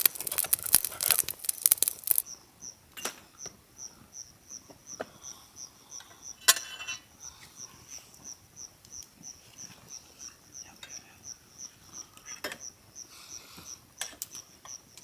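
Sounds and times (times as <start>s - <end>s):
insect chirping: 0.0s - 2.2s.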